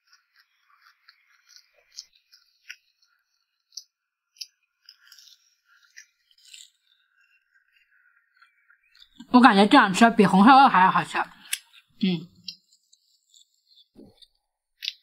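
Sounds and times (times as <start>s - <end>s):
chewing crispy pie: 0.0s - 9.3s.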